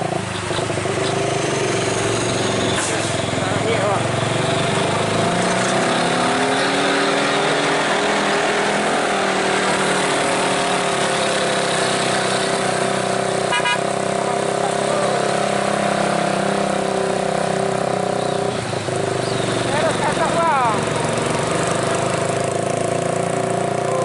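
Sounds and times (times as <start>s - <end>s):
truck diesel engine running: 0.0s - 24.0s
truck horn toot: 13.4s - 14.0s.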